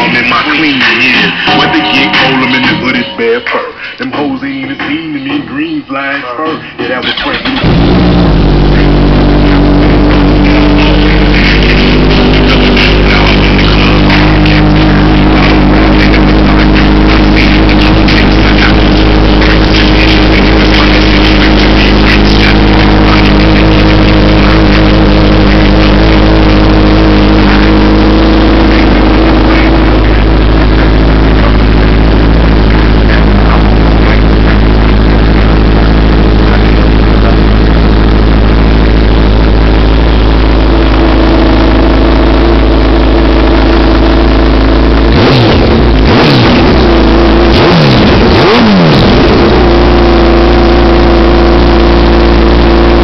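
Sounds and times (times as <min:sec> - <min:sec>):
motorcycle engine revving: 0:07.2 - 0:53.0
motorcycle engine idling: 0:07.6 - 0:38.7.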